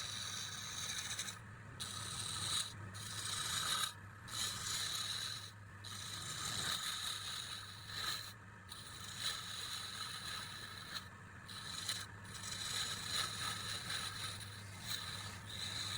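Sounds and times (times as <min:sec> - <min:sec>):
scraping on wood: 0:08.8 - 0:15.9.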